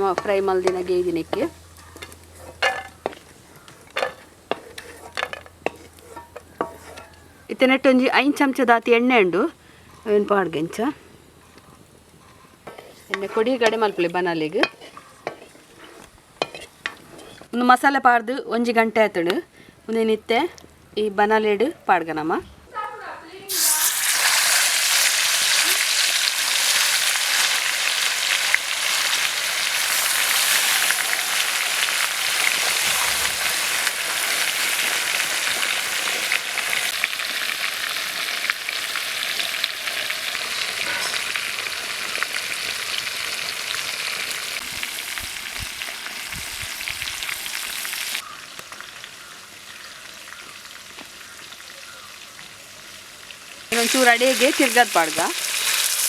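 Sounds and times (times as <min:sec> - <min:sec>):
chicken sizzling in hot oil: 0:23.5 - 0:56.0.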